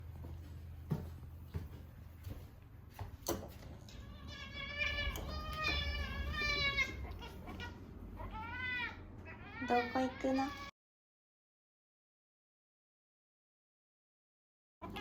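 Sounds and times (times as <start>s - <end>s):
cat meowing: 3.9s - 10.7s.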